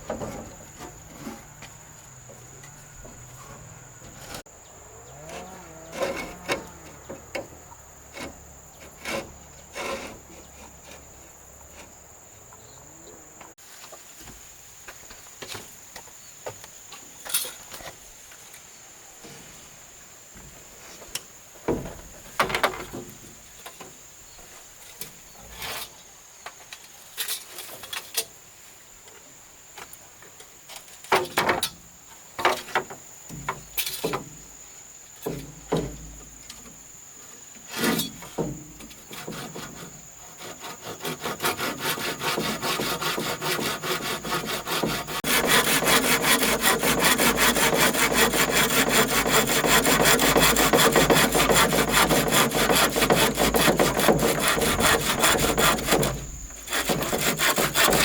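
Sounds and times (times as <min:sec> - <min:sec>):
wood knocks and scrapes: 0:00.0 - 0:04.5, 0:05.2 - 0:12.0, 0:20.4 - 0:24.0, 0:32.4 - 0:34.4, 0:35.2 - 0:36.8, 0:37.6 - 0:58.0
saw cutting wood: 0:00.1 - 0:12.0, 0:39.1 - 0:58.0.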